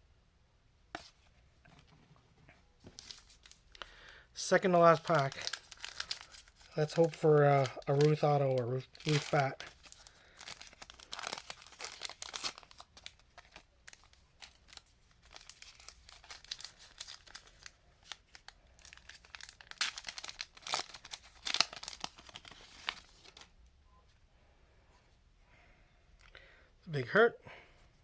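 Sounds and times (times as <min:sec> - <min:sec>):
wrapper tearing and crinkling: 0:04.4 - 0:23.5.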